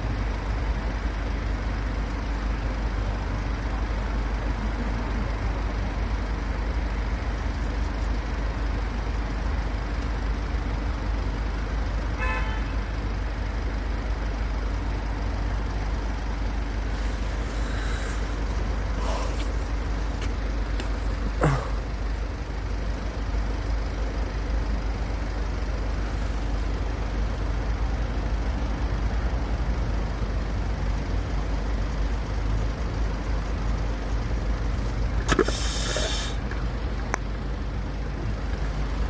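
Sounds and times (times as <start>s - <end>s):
road traffic rumble: 0.0s - 39.0s
car horn toot: 12.2s - 12.9s.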